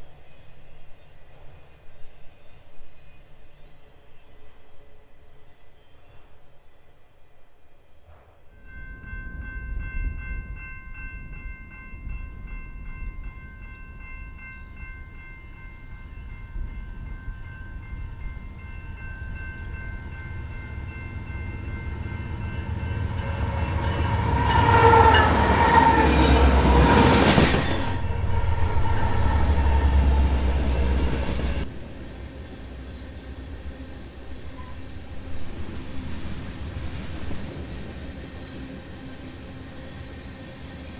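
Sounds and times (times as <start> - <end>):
train wheel and engine rush: 8.1 - 40.9
locomotive air horn chord: 19.8 - 31.5.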